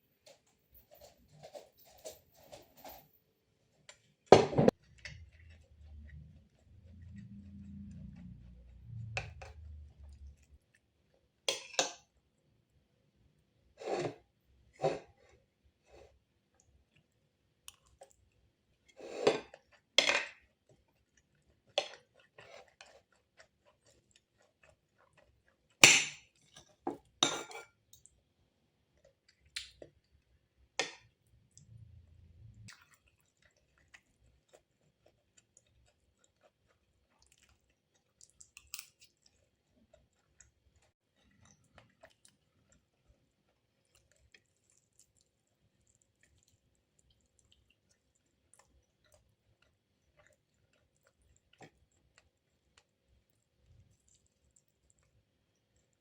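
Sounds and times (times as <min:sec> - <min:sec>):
dishes and cutlery clinking: 0:11.5 - 0:12.0, 0:26.9 - 0:27.8.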